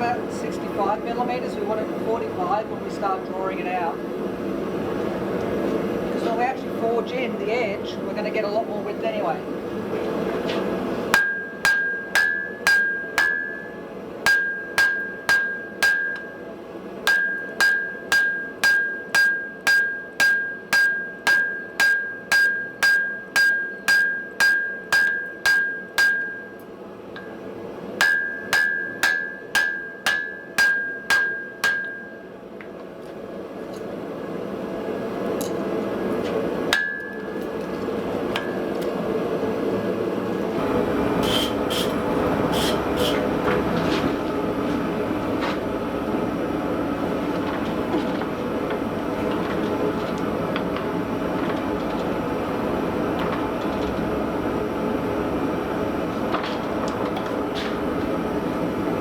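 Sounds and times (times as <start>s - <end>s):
hammer blows ringing on anvil: 11.1s - 26.6s, 28.0s - 32.4s, 36.7s - 37.6s.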